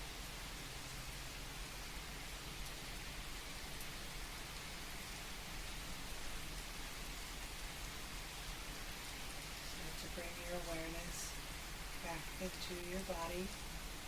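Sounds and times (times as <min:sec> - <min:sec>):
steady rain hiss: 0:00.0 - 0:14.0
rain drop ticks: 0:09.3 - 0:13.8.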